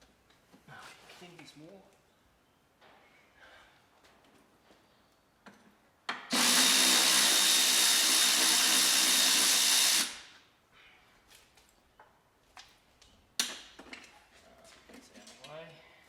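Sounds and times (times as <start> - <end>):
power tool whining: 6.3 - 10.4.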